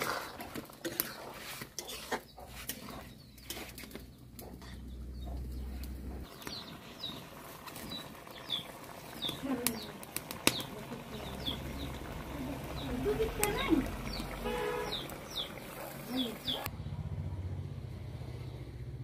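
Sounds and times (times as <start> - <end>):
bird chirping: 2.2 - 16.7.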